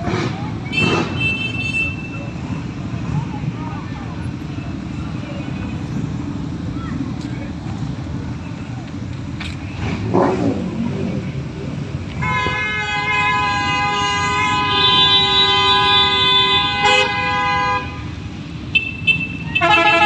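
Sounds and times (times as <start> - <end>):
engines rumbling: 0.0 - 20.0
wind: 0.0 - 20.0
vehicle horn blast: 0.7 - 2.3, 12.2 - 20.0.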